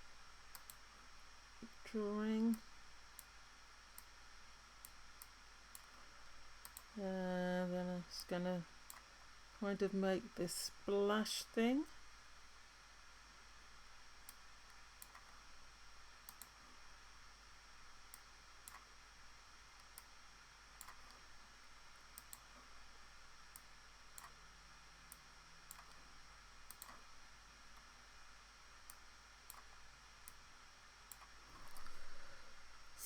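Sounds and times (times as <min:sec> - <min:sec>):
room hiss: 0:00.0 - 0:33.0
computer mouse clicking: 0:00.5 - 0:00.8, 0:04.8 - 0:06.0, 0:06.6 - 0:07.0, 0:08.9 - 0:09.2, 0:14.2 - 0:15.4, 0:16.2 - 0:16.6, 0:18.1 - 0:19.0, 0:20.8 - 0:21.3, 0:22.0 - 0:22.7, 0:23.5 - 0:24.4, 0:25.1 - 0:27.1, 0:28.8 - 0:30.4, 0:31.1 - 0:32.0.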